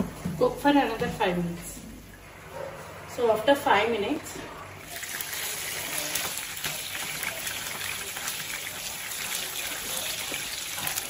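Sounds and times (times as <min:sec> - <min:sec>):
chicken sizzling in hot oil: 0:04.8 - 0:11.0.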